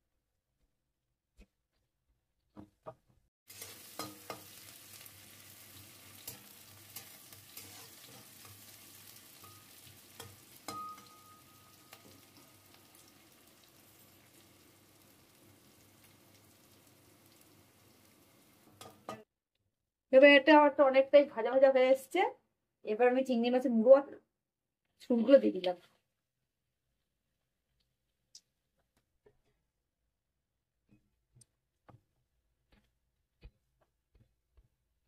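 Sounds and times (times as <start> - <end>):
metal spatula scraping pan: 3.5 - 12.7
food sizzling in oil: 3.5 - 19.3.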